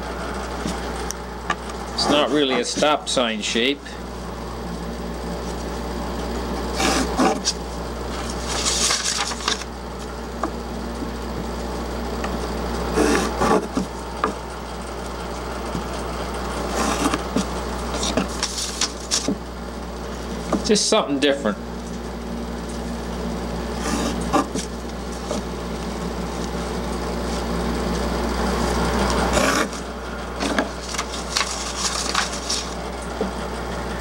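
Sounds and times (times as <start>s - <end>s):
steady low hum: 0.0s - 34.0s
pencil scratching on plywood: 2.0s - 3.0s, 6.7s - 7.6s, 12.9s - 13.9s, 16.7s - 19.4s, 23.8s - 24.7s, 29.3s - 29.8s.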